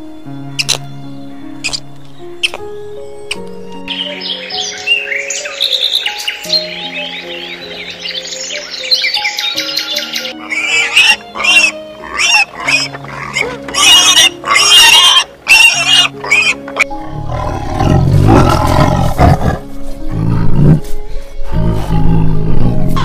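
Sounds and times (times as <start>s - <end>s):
background music: 0.0s - 23.0s
low rough animal roar: 17.0s - 20.8s.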